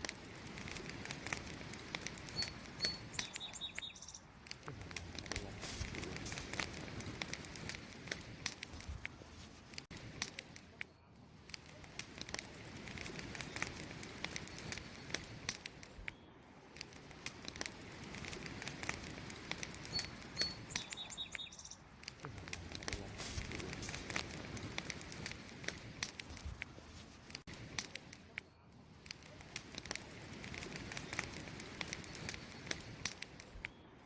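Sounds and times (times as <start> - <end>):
campfire crackling and popping: 0.0 - 34.0
high chirp: 2.3 - 4.3, 19.8 - 21.9.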